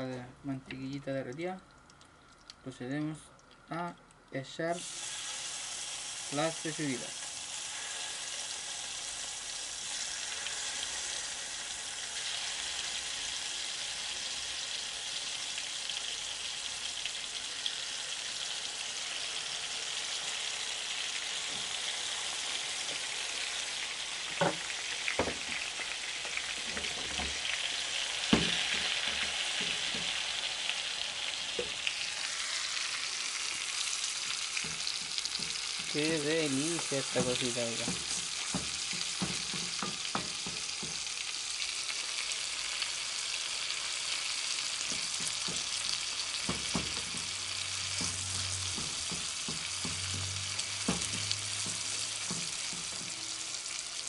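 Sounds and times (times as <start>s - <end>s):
meat sizzling in butter: 4.6s - 54.0s
knocks against a pan: 24.3s - 25.6s, 28.3s - 30.2s, 37.2s - 41.0s, 44.9s - 45.8s, 46.4s - 47.4s, 48.0s - 53.2s.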